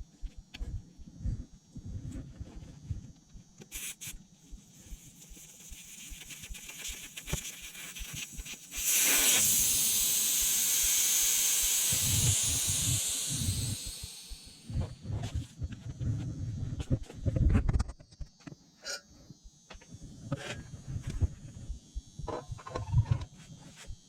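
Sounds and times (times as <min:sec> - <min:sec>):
escaping air hissing: 0:08.7 - 0:14.8.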